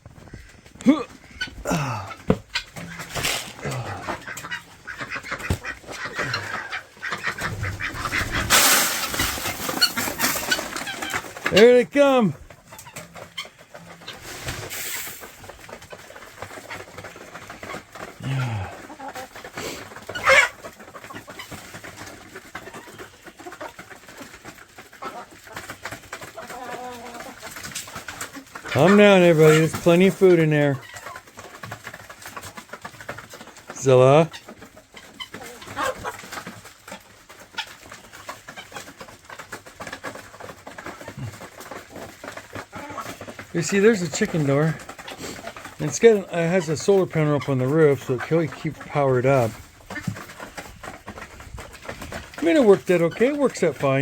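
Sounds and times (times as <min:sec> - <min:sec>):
chickens clucking: 0:00.0 - 0:54.0
chicken higher call: 0:00.8 - 0:11.0.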